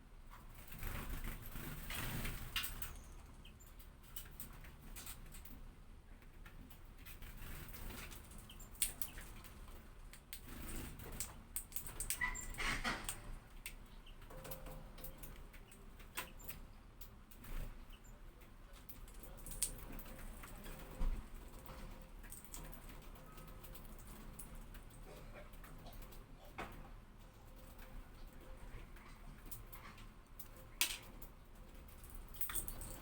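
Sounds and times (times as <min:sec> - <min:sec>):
faint clicks and rustles: 0:00.2 - 0:33.0
bird chirp: 0:02.7 - 0:03.8.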